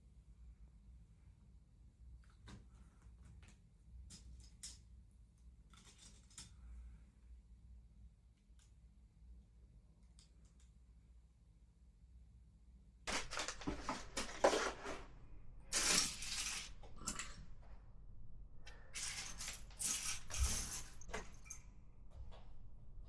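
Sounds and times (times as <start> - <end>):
plastic packaging rustling: 13.1 - 17.7
plastic pieces clattering: 13.1 - 17.7, 18.7 - 21.6.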